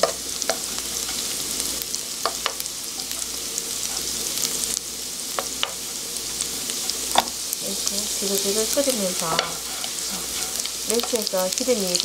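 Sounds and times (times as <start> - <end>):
wooden spoon against pan: 0.0 - 1.3, 2.2 - 4.1, 8.3 - 11.6
fish sizzling in oil: 0.0 - 12.0.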